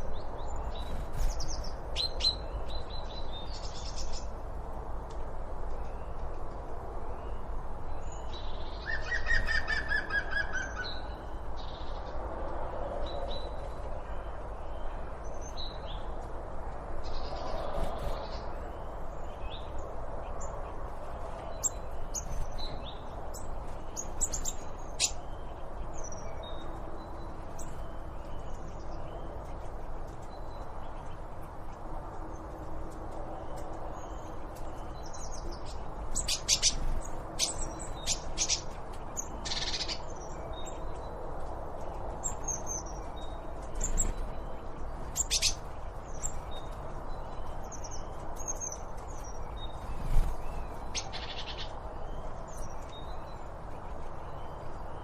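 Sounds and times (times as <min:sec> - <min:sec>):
birds chirping and calling: 0:08.8 - 0:11.2, 0:21.2 - 0:29.2, 0:33.5 - 0:41.0, 0:41.8 - 0:55.0.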